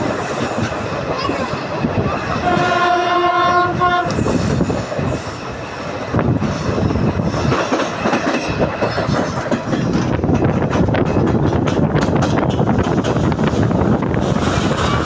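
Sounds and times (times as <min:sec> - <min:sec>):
train clattering: 0:00.0 - 0:15.0
train wheels rumbling on rails: 0:00.0 - 0:15.0
locomotive horn: 0:02.4 - 0:04.2.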